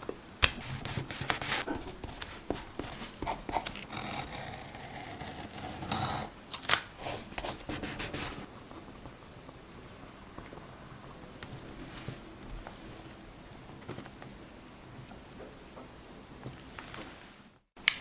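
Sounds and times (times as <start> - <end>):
paper and tape handled: 0.4 - 4.4.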